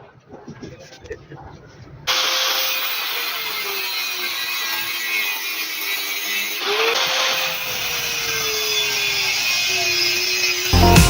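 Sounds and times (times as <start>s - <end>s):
metal grinding hiss: 2.1s - 10.8s
power tool motor whine: 2.1s - 10.8s.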